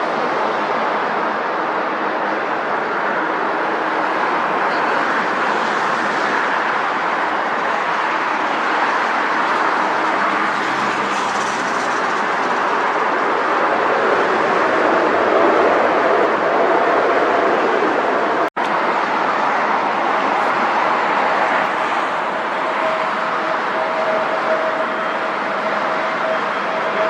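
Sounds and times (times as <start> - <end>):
jet engines running: 0.0 - 27.0.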